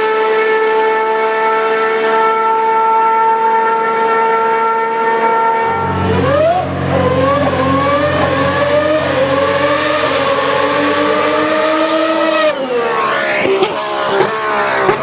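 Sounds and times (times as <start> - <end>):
racing car engine revving: 3.6 - 15.0.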